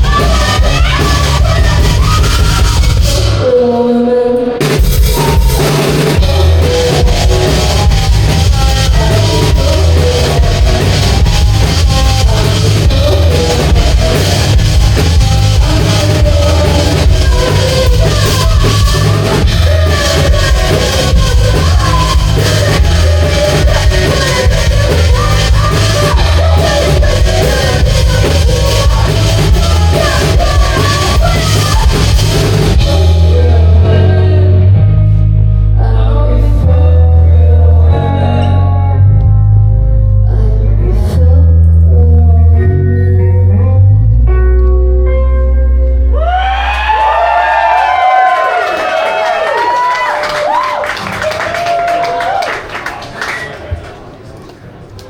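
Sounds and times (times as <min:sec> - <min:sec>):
drums and cymbals: 0:00.0 - 0:03.4, 0:04.6 - 0:33.8
rock band playing heavy music: 0:00.0 - 0:03.8, 0:04.5 - 0:40.0.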